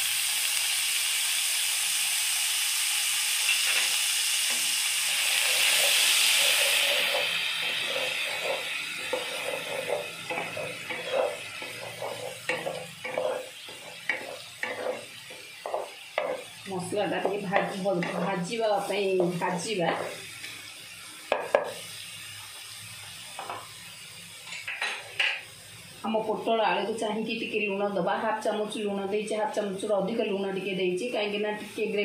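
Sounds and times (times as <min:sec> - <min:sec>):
paste sizzling in hot oil: 0:00.0 - 0:27.8
wooden spatula scraping a pan: 0:05.2 - 0:20.2.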